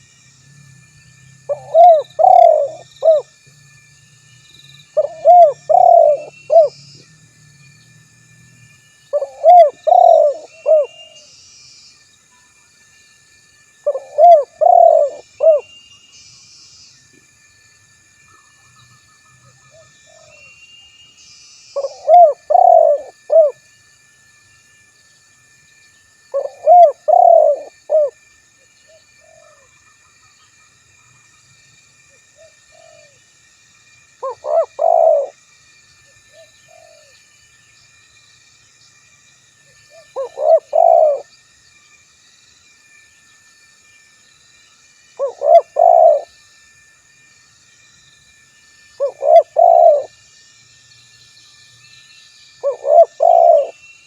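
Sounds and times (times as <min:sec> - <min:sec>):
dove cooing: 0:01.5 - 0:03.3, 0:05.0 - 0:06.8, 0:09.1 - 0:11.1, 0:13.8 - 0:15.7, 0:21.8 - 0:23.6, 0:26.3 - 0:28.2, 0:32.4 - 0:33.2, 0:34.2 - 0:35.4, 0:36.4 - 0:37.1, 0:40.0 - 0:41.3, 0:45.2 - 0:46.3, 0:49.0 - 0:50.1, 0:52.6 - 0:53.8.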